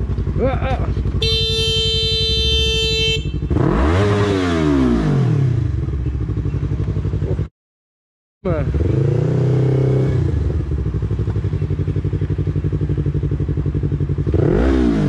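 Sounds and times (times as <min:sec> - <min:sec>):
motorcycle engine running: 0:00.0 - 0:07.5, 0:08.4 - 0:15.0
motorcycle horn: 0:01.0 - 0:04.4.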